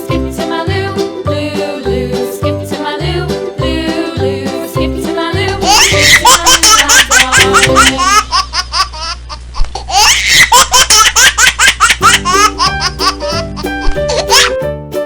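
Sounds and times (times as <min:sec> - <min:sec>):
children's background music: 0:00.0 - 0:08.2, 0:12.0 - 0:15.0
baby laughing: 0:05.6 - 0:14.6.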